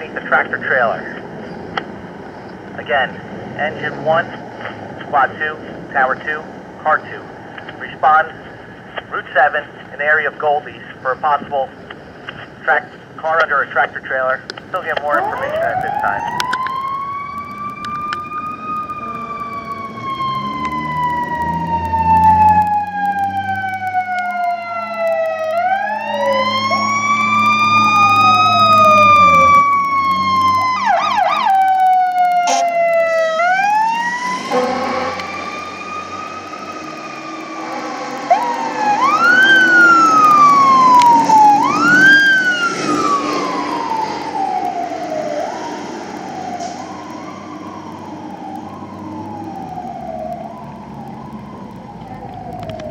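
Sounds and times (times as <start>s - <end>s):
truck engine rumble: 0.0s - 52.9s
mechanical siren wailing: 15.0s - 52.9s.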